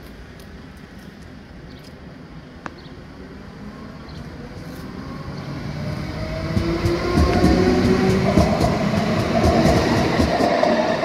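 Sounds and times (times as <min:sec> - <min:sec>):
train rumble: 0:03.1 - 0:11.0.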